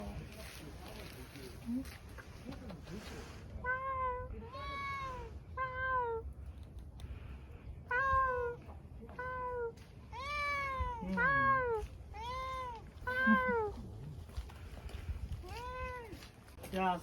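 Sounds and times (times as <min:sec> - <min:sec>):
cat meowing: 0:03.6 - 0:06.2, 0:07.9 - 0:08.6, 0:09.2 - 0:13.8, 0:15.4 - 0:16.2.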